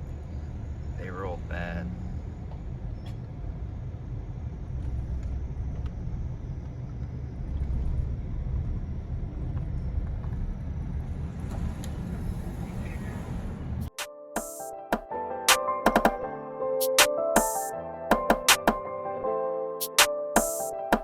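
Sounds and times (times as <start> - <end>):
vehicle road rumble: 0.0 - 13.9.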